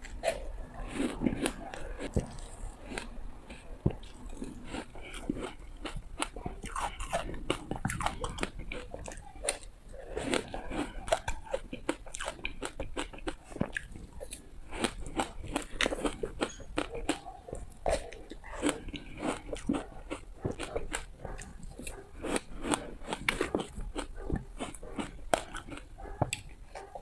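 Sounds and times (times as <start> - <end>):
chewing: 0.0 - 27.0
person crunching ice: 0.9 - 3.2, 14.7 - 17.2.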